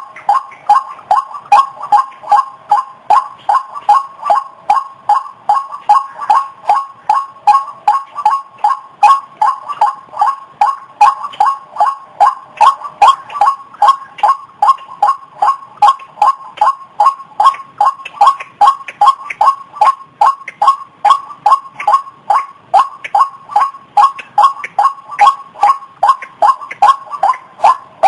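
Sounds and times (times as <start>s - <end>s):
waterhen calling: 0.0s - 28.0s.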